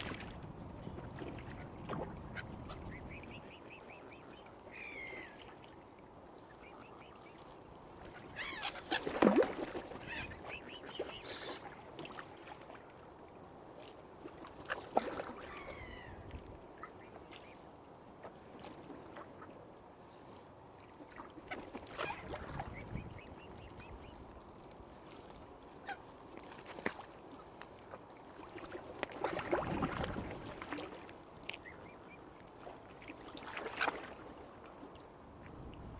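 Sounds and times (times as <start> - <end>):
waterfowl calling: 2.3 - 5.7, 8.1 - 9.2, 10.0 - 11.6.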